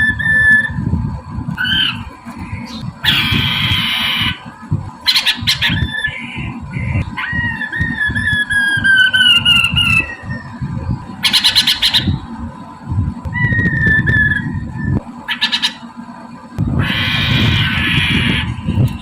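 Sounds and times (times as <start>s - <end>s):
bird singing whistled notes: 0.0s - 0.8s, 5.1s - 12.2s, 13.3s - 15.8s
bird harsh chattering: 1.6s - 10.6s, 11.2s - 12.3s, 15.3s - 15.9s, 16.8s - 19.0s.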